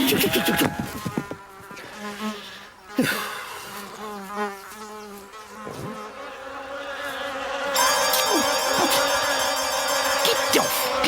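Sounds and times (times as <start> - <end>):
cartoon fly buzzing: 0.0 - 2.3, 3.9 - 11.0.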